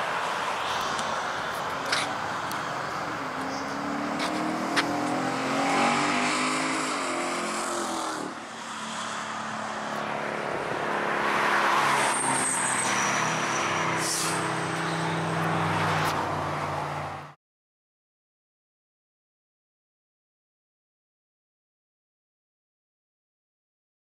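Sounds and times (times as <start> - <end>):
car engine accelerating past: 3.4 - 17.1.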